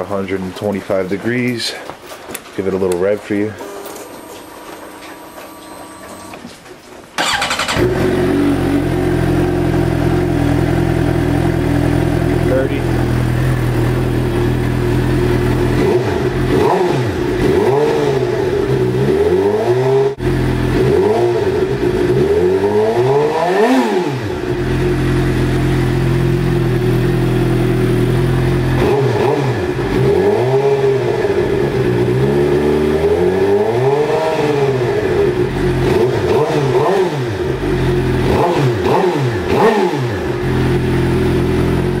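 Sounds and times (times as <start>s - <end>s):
motorcycle engine revving and idling: 7.2s - 42.0s.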